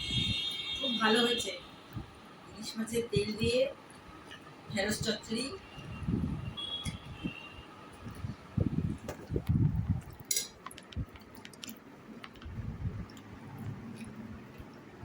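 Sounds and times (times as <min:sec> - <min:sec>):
wet chewing: 0:09.9 - 0:15.0
plates and bowls clinking: 0:10.2 - 0:10.6.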